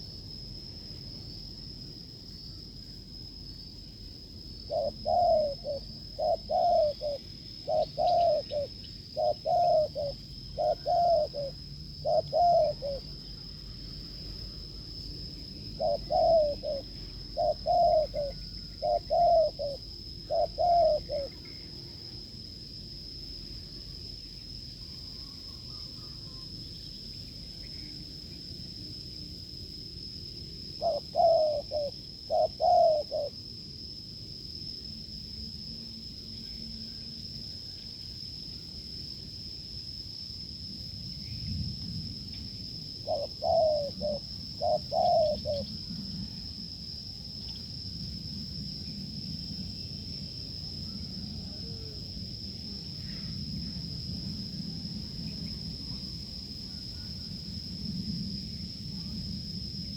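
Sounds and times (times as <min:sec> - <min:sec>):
dove cooing: 0:04.7 - 0:13.2, 0:15.6 - 0:21.6, 0:30.8 - 0:33.4, 0:43.0 - 0:46.4.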